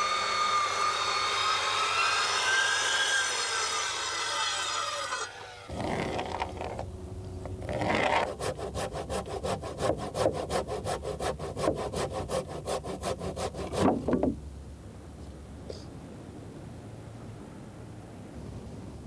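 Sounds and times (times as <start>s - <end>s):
handsaw cutting timber: 4.6s - 6.8s, 7.5s - 14.4s.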